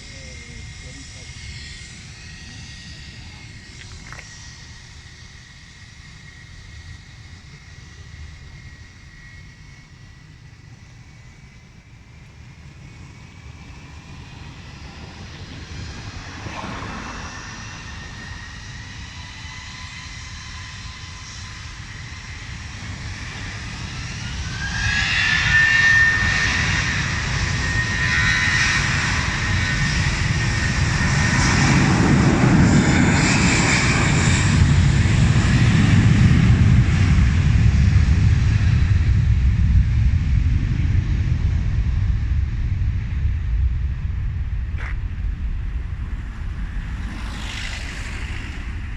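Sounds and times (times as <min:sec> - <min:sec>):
deep jet rumble: 0:00.0 - 0:48.9
jet engine whine: 0:00.0 - 0:48.9.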